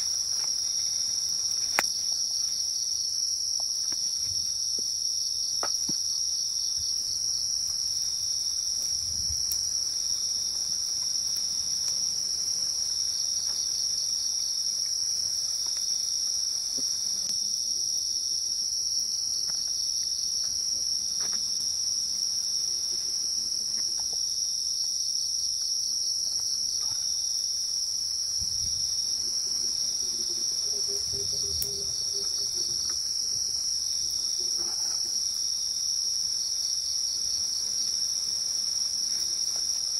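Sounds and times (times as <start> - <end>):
crickets and insects chirping: 0.0 - 39.9.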